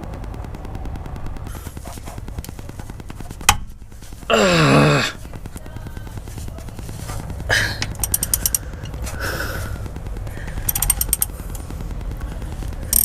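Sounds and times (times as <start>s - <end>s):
steady low rumble: 0.0s - 13.0s
socket ratchet clicking: 7.8s - 9.0s, 10.6s - 11.6s.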